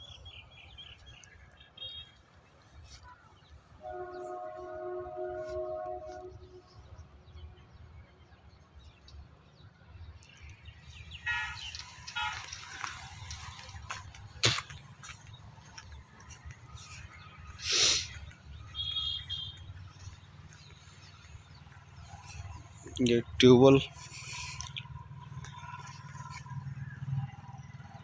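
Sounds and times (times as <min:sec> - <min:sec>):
birds calling: 0:00.0 - 0:27.1.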